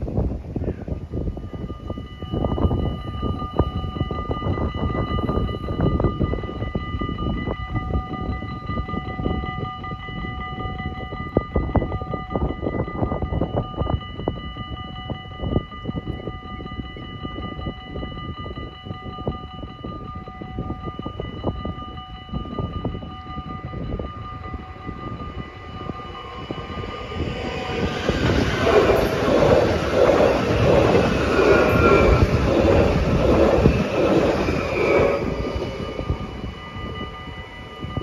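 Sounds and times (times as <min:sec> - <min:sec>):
railroad crossing bells ringing: 0:00.0 - 0:38.0
train passing: 0:18.8 - 0:38.0.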